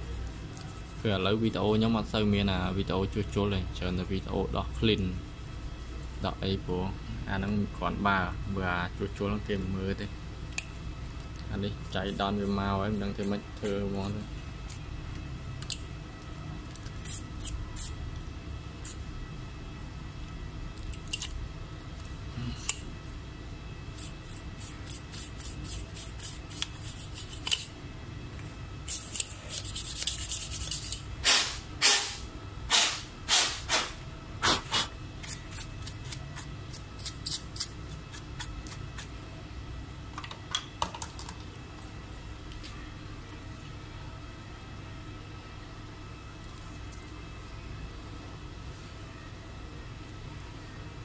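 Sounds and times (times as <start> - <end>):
steady low hum: 0.0 - 51.0
brush scrubbing circuit board: 11.8 - 14.2, 24.0 - 27.7, 28.9 - 31.0.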